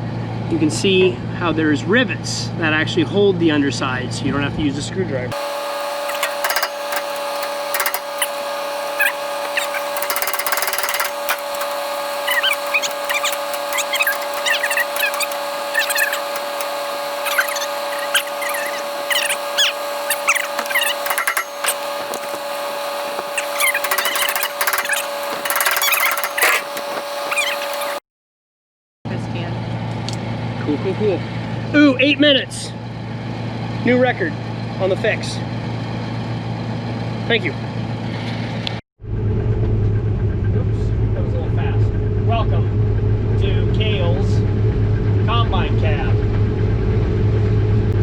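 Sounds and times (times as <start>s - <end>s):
steady machine hum: 5.3s - 28.0s
hand tools clicking and clanking: 5.4s - 28.0s
quick chirping squiggles: 5.4s - 28.0s.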